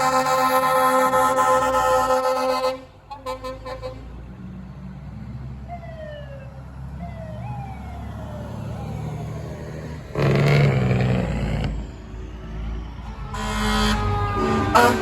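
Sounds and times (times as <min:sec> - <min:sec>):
fire truck engine running: 0:00.0 - 0:15.0
siren wailing: 0:05.7 - 0:12.0, 0:12.8 - 0:15.0.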